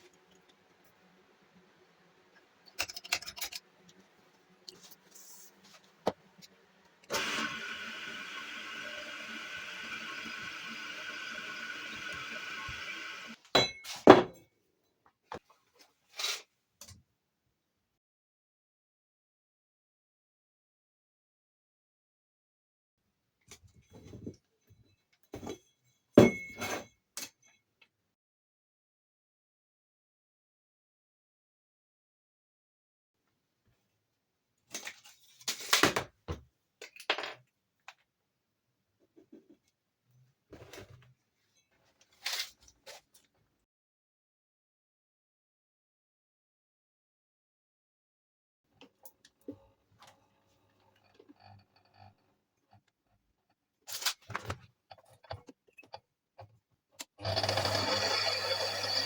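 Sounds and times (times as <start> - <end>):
small metal parts scraping and clinking: 2.8 - 3.7.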